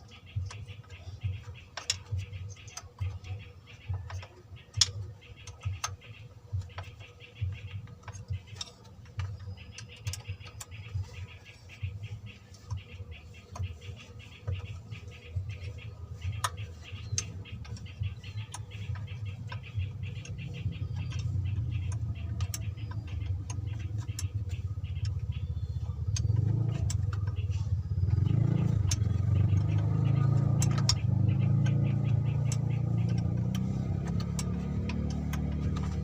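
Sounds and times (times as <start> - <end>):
diesel engine rumbling: 0.0 - 36.0
fast even ticking: 0.0 - 36.0.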